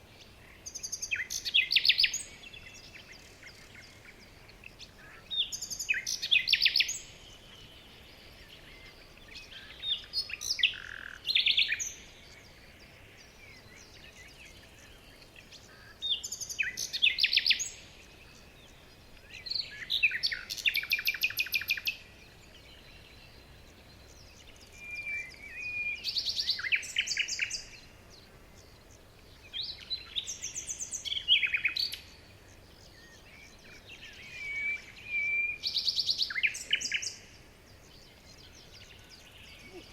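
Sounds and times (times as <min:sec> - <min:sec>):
faint outdoor hiss: 0:00.0 - 0:39.9
songbird trilling: 0:00.5 - 0:07.2, 0:15.6 - 0:17.9, 0:18.8 - 0:22.0, 0:24.2 - 0:27.8, 0:29.4 - 0:37.4.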